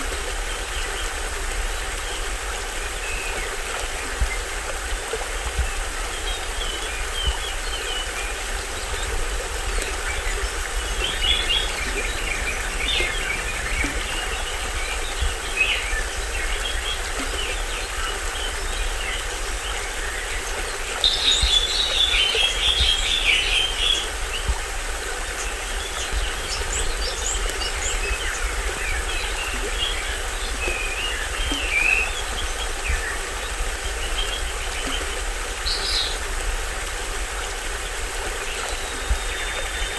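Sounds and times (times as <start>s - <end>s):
small waterfall running: 0.0s - 39.9s
birds chirping and calling: 6.2s - 24.1s.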